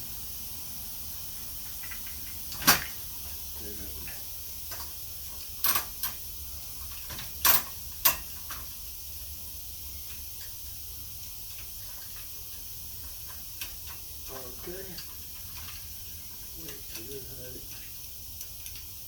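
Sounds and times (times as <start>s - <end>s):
bicycle parts clicking and knocking: 1.6s - 3.4s, 4.0s - 6.2s, 6.8s - 8.8s, 11.4s - 18.9s.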